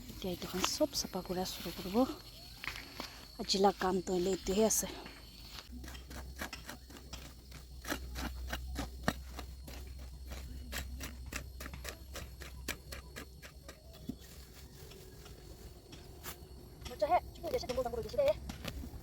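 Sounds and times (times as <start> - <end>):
hand tool chopping weeds and soil: 5.6 - 19.0.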